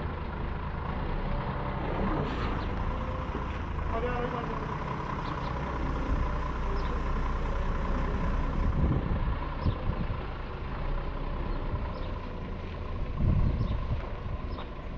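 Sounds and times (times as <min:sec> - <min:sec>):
truck engine running: 0:00.0 - 0:14.9.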